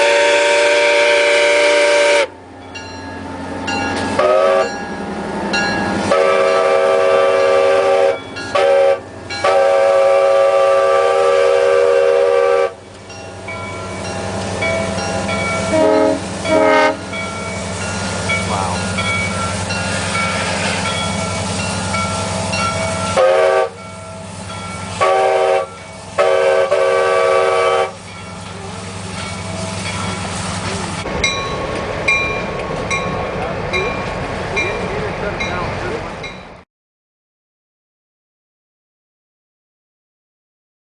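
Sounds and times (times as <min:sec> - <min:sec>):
locomotive air horn blasts: 0:00.0 - 0:02.3, 0:04.2 - 0:04.7, 0:06.0 - 0:12.8, 0:15.6 - 0:17.2, 0:22.2 - 0:23.8, 0:24.9 - 0:28.0
diesel locomotive engine running: 0:00.0 - 0:36.6
bell ringing steadily: 0:02.6 - 0:04.0, 0:13.1 - 0:15.7, 0:17.1 - 0:23.1, 0:23.8 - 0:24.9, 0:28.0 - 0:30.3.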